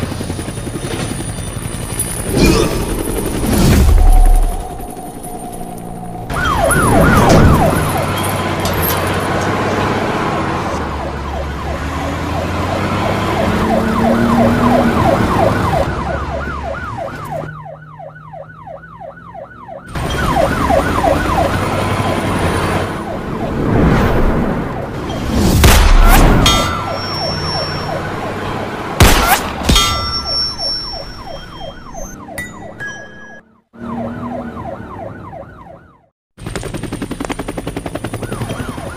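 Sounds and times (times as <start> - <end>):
siren wailing in fast sweeps: 2.2 - 8.5, 10.8 - 24.3, 26.6 - 28.4, 30.2 - 36.1, 38.2 - 38.9.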